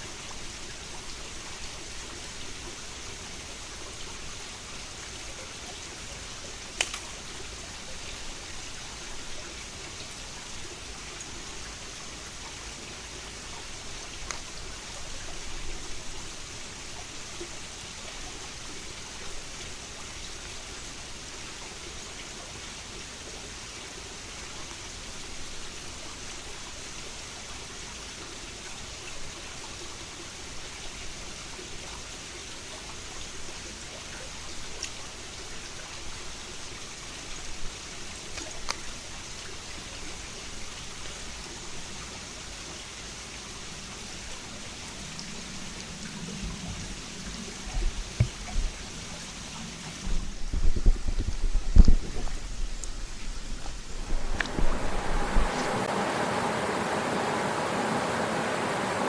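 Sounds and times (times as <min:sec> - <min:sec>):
mountain stream flowing: 0:00.0 - 0:59.0
sharp click: 0:06.8 - 0:07.1.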